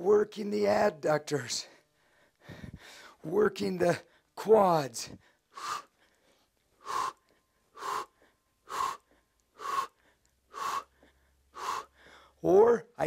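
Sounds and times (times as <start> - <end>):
man breathing out sharply: 6.8 - 12.4.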